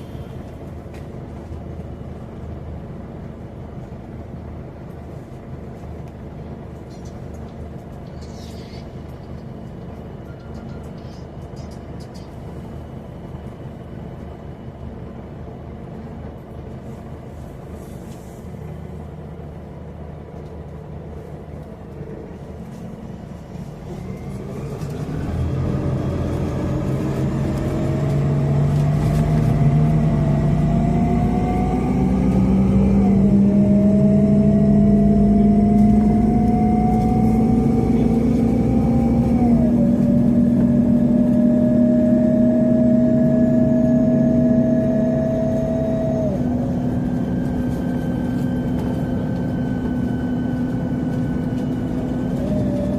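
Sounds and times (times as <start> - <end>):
bus engine accelerating: 0.0 - 52.9
whine climbing in pitch: 23.9 - 52.9.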